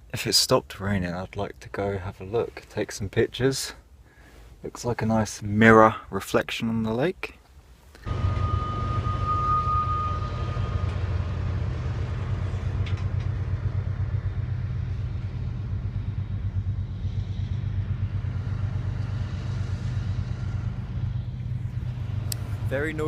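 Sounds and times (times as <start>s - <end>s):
high wheel squeal: 8.1s - 12.7s
train rumbling past: 8.1s - 23.0s.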